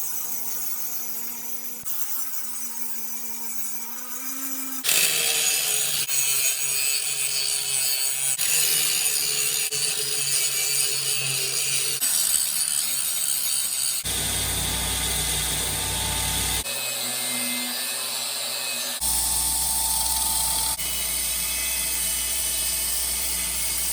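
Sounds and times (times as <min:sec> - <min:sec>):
power tools cutting or grinding: 0:00.2 - 0:23.9.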